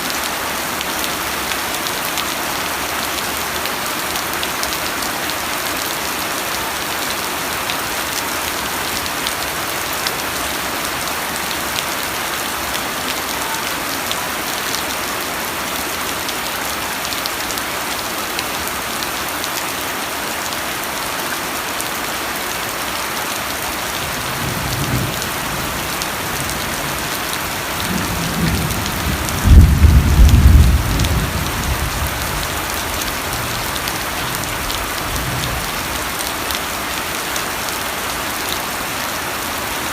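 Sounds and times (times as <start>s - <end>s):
steady rain falling: 0.0s - 39.9s
thunder rumble: 27.9s - 32.4s.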